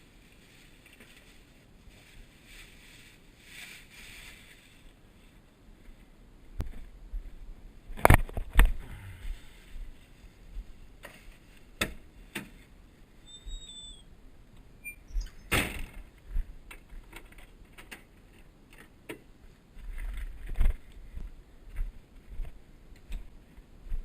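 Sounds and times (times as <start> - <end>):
faint low rumble: 0.0 - 17.7
short high chirp: 14.8 - 15.5.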